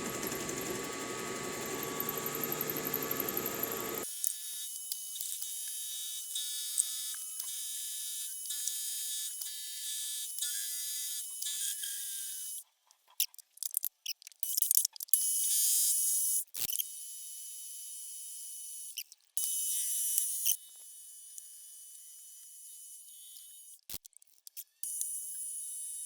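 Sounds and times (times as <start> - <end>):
milling machine cutting metal: 0.0 - 4.0.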